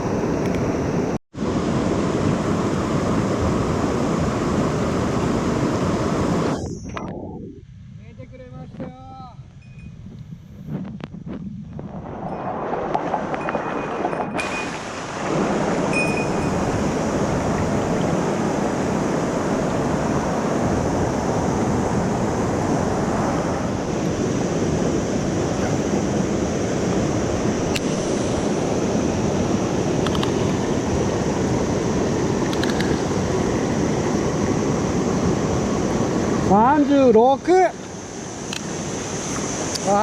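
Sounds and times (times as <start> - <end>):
stream water rushing: 13.0 - 40.0
faint clicks: 30.0 - 30.6.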